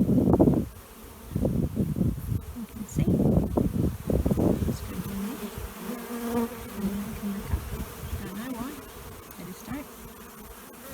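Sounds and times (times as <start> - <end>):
honey bees buzzing: 0.0 - 10.9.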